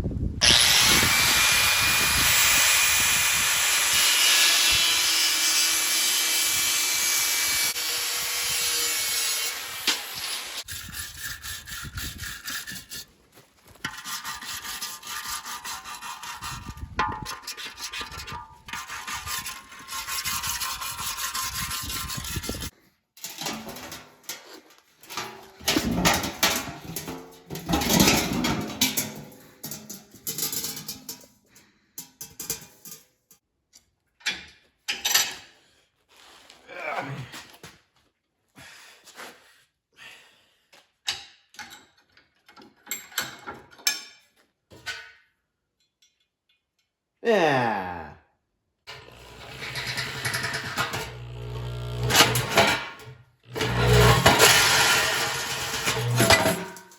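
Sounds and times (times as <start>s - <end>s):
metal cutting with high tone: 0.4s - 10.7s, 48.9s - 56.8s
fast rasping strokes on metal: 0.4s - 13.1s, 13.8s - 22.7s, 48.9s - 53.0s, 53.6s - 56.7s.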